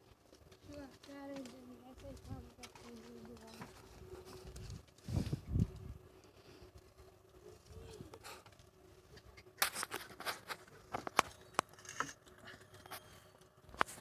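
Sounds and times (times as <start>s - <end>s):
faint steady hum: 0.0s - 14.0s
sharp clicks and light knocks: 8.4s - 14.0s.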